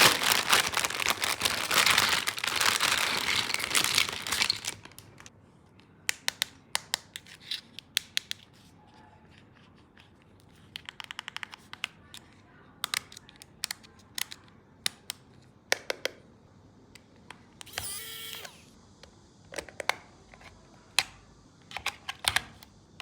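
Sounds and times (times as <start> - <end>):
packaging crinkling and tearing: 0.0 - 5.3.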